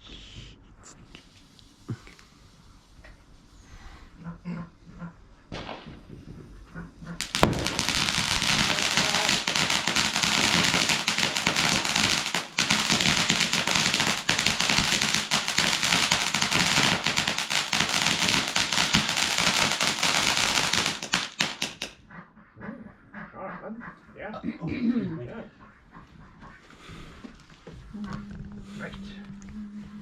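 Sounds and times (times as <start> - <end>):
firework crackling: 7.2 - 22.0.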